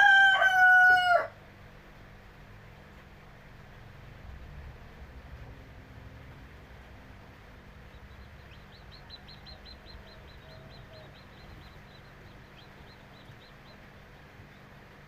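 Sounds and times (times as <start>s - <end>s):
steady low hum: 0.0s - 15.0s
chick peeping: 6.1s - 14.9s.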